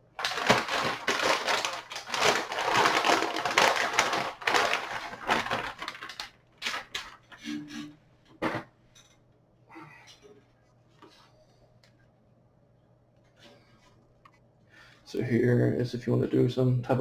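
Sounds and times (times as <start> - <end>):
packaging crinkling and rustling: 0.0 - 7.3.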